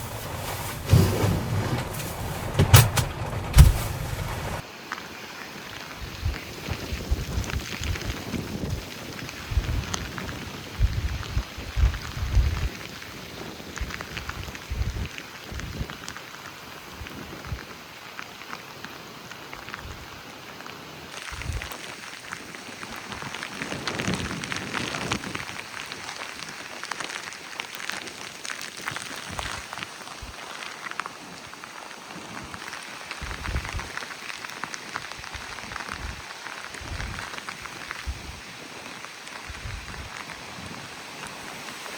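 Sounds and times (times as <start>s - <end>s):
heavy rain falling: 0.0s - 4.6s
low thuds: 0.0s - 4.6s
wind gusts rumbling: 0.0s - 4.6s
heavy rain on hard surface: 0.0s - 41.9s.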